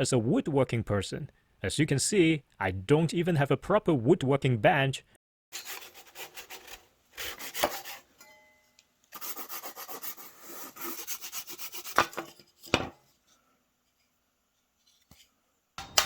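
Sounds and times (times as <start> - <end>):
hand tool scraping wood: 5.6 - 8.1.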